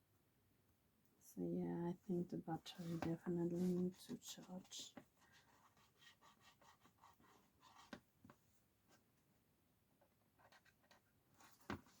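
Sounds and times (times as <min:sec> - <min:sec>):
taps and scratching on tablet: 0:02.8 - 0:08.4, 0:10.4 - 0:12.0.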